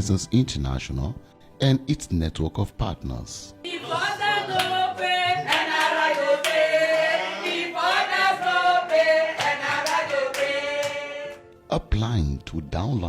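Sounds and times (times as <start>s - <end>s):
voices singing gliding notes: 3.6s - 11.4s.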